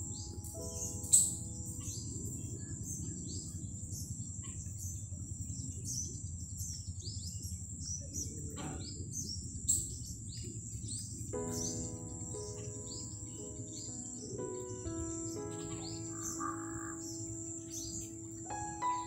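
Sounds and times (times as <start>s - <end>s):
high crackles and chirps: 9.0s - 19.0s.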